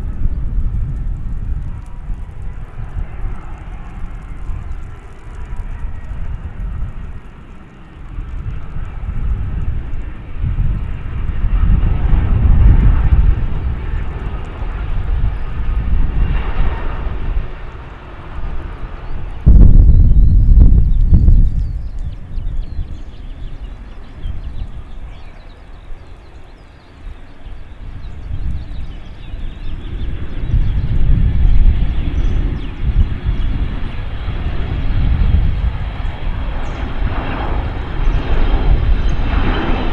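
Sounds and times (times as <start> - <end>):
low rumble: 0.0 - 25.3
jet aircraft passing: 0.0 - 39.9
small birds chirping: 17.5 - 39.9.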